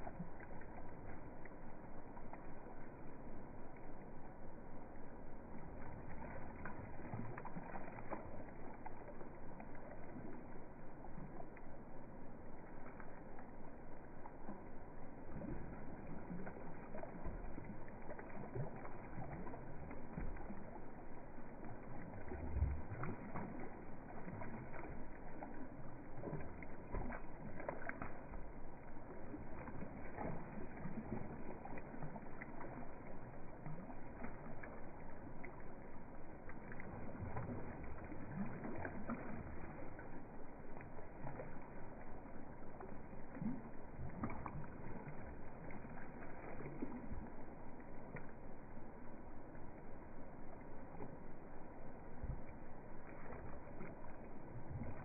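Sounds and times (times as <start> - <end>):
water lapping from ducks: 0.0 - 55.0
louder water splash: 26.2 - 28.4, 29.5 - 31.4.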